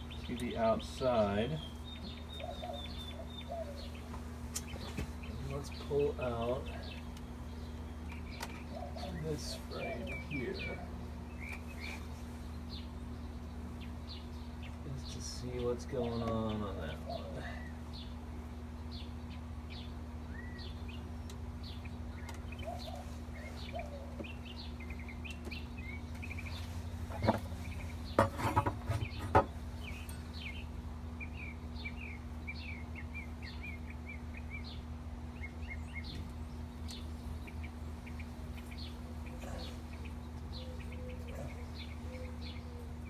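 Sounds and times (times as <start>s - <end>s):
honeybees humming: 0.0s - 43.0s
small birds chirping: 0.0s - 43.0s
hive frame knocks and scrapes: 27.1s - 29.6s.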